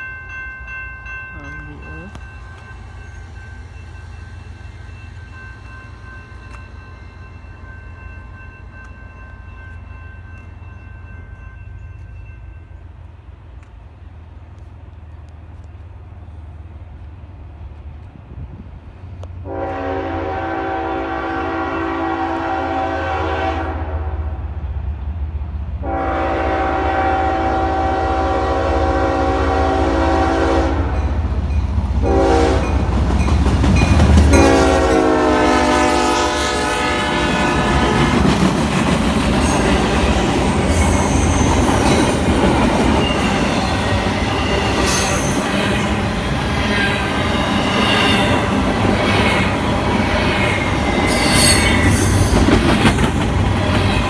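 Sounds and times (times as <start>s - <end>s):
train wheels clacking and squealing: 1.4s - 19.4s, 30.9s - 34.7s, 36.9s - 54.0s
locomotive horn blasts: 19.4s - 24.4s, 25.8s - 31.2s, 32.0s - 32.9s, 34.3s - 38.2s.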